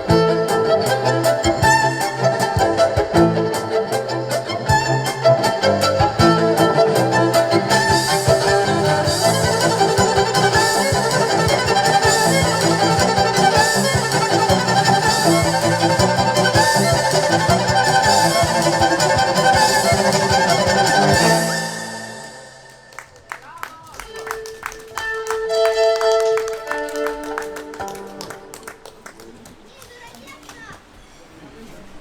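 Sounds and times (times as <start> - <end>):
steady drum beat: 0.0 - 21.9
bowed violin melody: 0.0 - 23.1, 24.1 - 28.9
bass: 0.1 - 21.8.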